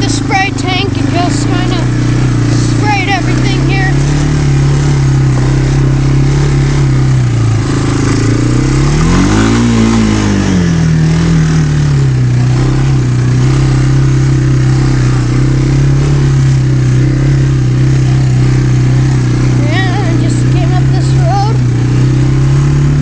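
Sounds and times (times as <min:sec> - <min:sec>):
utility vehicle engine running: 0:00.0 - 0:23.0.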